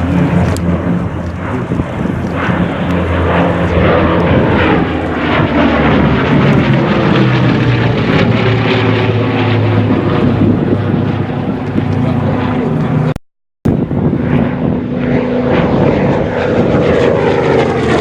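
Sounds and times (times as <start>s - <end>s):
propeller airplane flying past: 0.0s - 18.0s.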